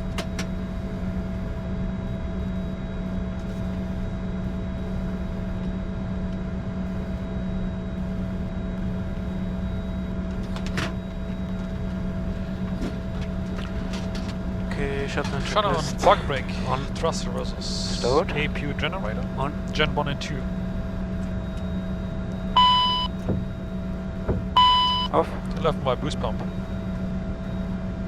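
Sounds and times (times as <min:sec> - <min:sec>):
jet engines idling: 0:00.0 - 0:28.0.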